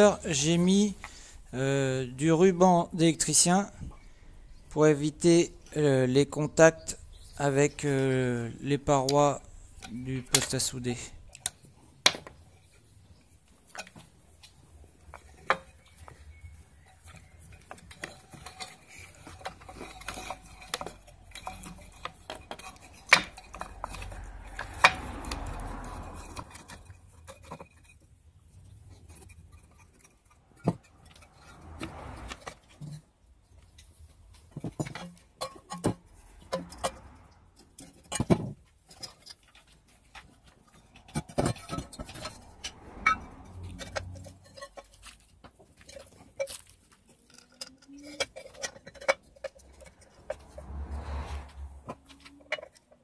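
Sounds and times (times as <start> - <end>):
metal parts clinking: 13.6 - 28.0.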